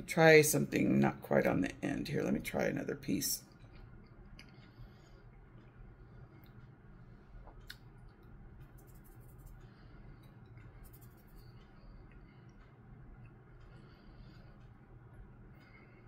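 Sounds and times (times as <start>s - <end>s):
low room hum: 0.0s - 16.0s
soft mouth clicks: 7.4s - 7.9s.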